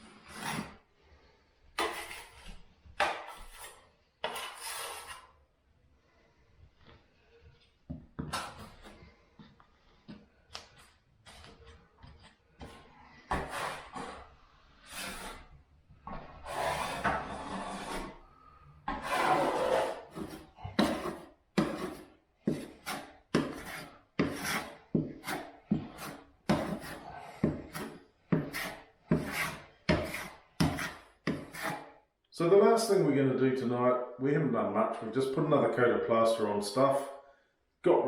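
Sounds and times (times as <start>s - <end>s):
plastering knife scraping wall: 0.0s - 0.9s, 1.7s - 5.3s, 6.8s - 32.0s.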